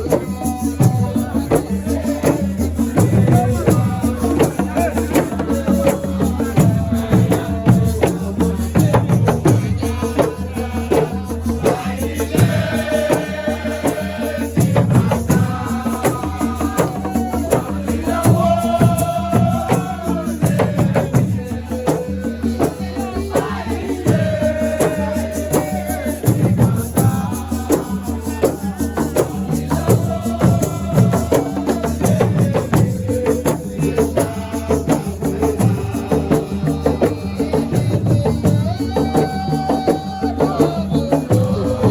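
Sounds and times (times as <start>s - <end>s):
drums and rattles rhythm: 0.0s - 41.9s
person singing: 35.4s - 41.9s.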